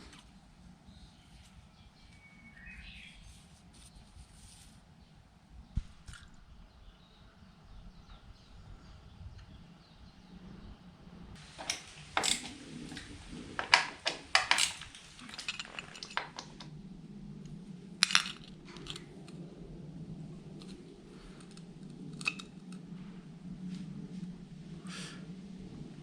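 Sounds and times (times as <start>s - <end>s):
faint steady hum: 0.0s - 26.0s
small metal objects clinking: 11.4s - 16.7s, 18.0s - 19.1s.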